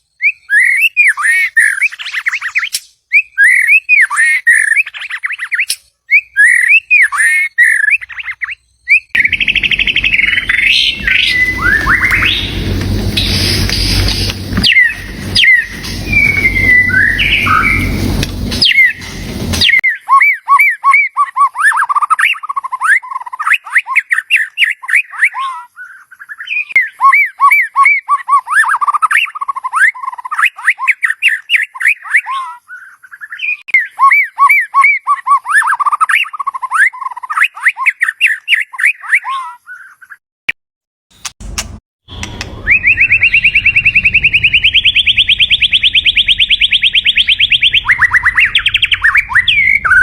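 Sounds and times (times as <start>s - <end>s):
bird whistling rapid notes: 8.9s - 19.8s, 42.5s - 50.0s.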